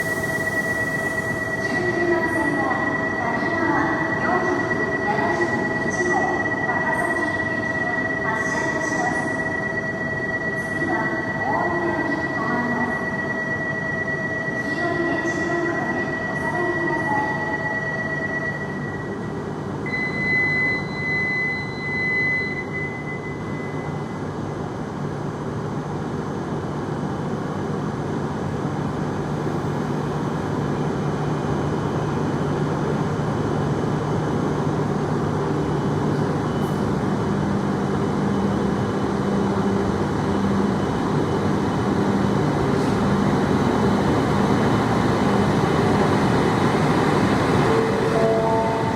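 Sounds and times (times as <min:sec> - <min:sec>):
high-pitched train squeal: 0:00.0 - 0:11.0, 0:46.2 - 0:48.9
train running gear hum: 0:24.3 - 0:48.9.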